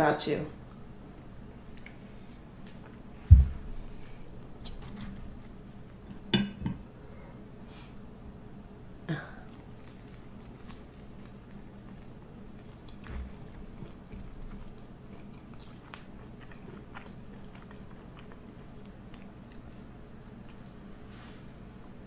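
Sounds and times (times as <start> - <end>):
soft thump: 3.2 - 3.8
person chewing food: 9.4 - 21.1.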